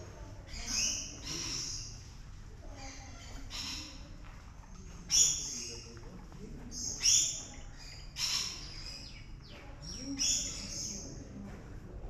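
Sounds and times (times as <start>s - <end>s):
birds calling: 0.4s - 4.2s, 6.7s - 11.2s.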